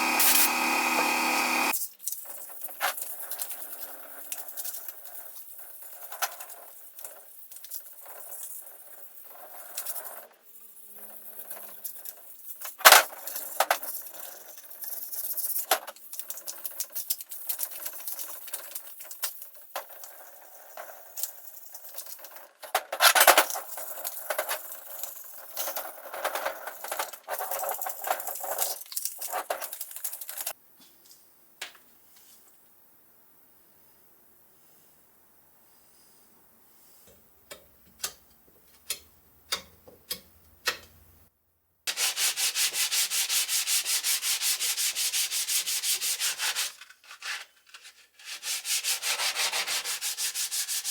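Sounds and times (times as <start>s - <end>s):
small metal parts clicking and clinking: 21.3s - 30.6s.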